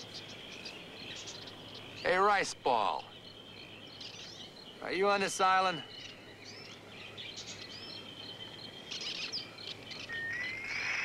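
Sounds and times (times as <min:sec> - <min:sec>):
bird chirps and whistles: 0:10.0 - 0:11.0
rising bird whistle: 0:10.0 - 0:11.0.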